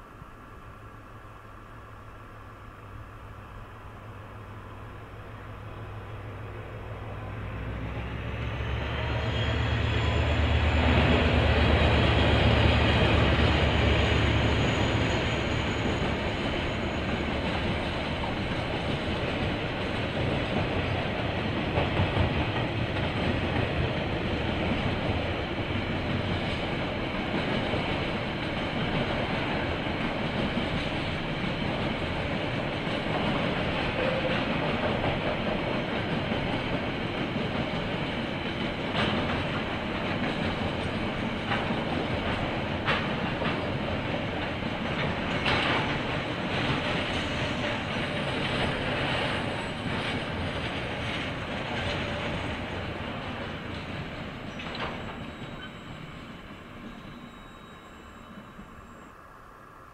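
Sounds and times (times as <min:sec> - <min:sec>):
diesel locomotive engine drone: 0:00.0 - 0:59.9
wagons rumbling on rails: 0:02.1 - 0:59.8.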